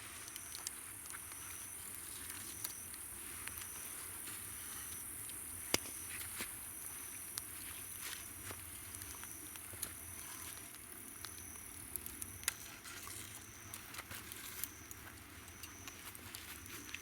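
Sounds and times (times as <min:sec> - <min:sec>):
campfire crackling and popping: 0:04.4 - 0:17.0.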